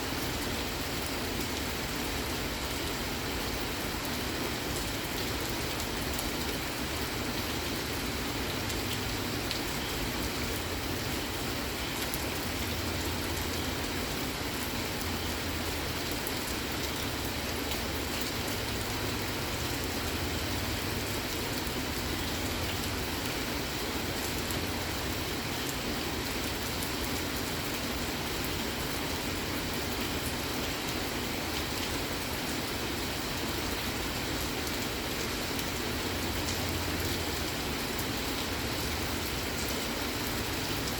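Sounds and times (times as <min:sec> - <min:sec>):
steady rain hiss: 0:00.0 - 0:40.9
rain drops ticking: 0:00.1 - 0:40.9.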